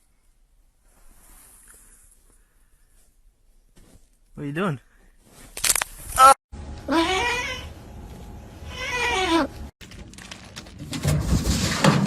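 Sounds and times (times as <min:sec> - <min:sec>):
clicks and rustling: 0:09.8 - 0:12.0.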